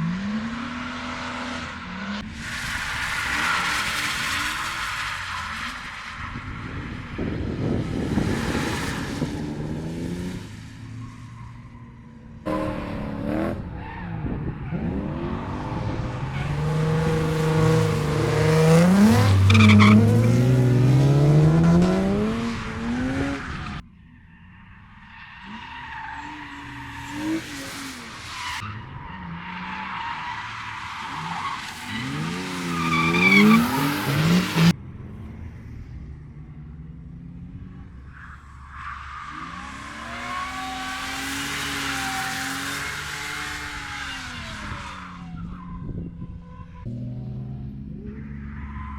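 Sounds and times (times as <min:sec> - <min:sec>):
car engines revving: 0:00.0 - 0:48.9
tyres squealing: 0:16.2 - 0:20.4, 0:30.2 - 0:34.7.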